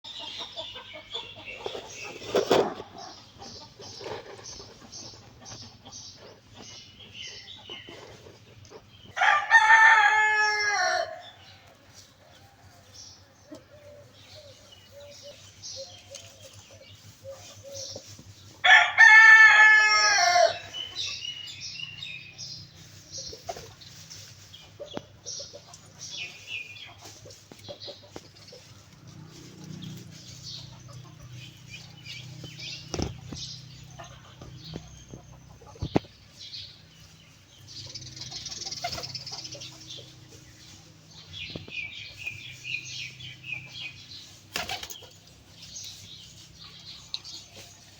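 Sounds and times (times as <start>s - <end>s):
rooster crowing: 9.2s - 11.4s, 18.6s - 20.8s
birds rustling and flapping wings: 26.6s - 31.3s, 44.3s - 47.9s.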